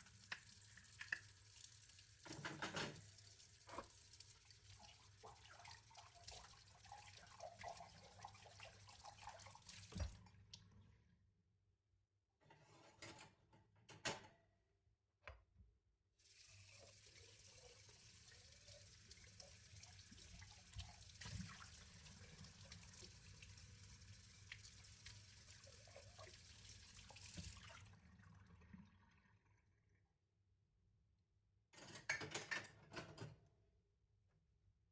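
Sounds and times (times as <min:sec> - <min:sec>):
tap water running into sink: 0:00.0 - 0:10.2, 0:16.2 - 0:28.4.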